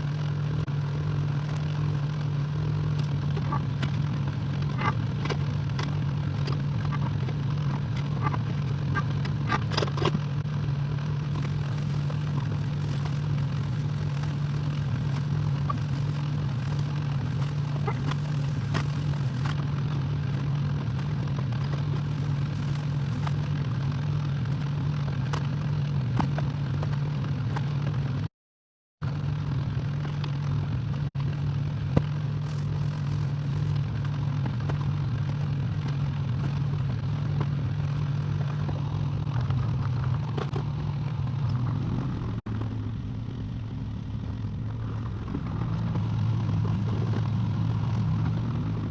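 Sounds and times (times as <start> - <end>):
excavator engine droning: 10.7 - 20.5, 21.9 - 24.5, 29.0 - 48.9.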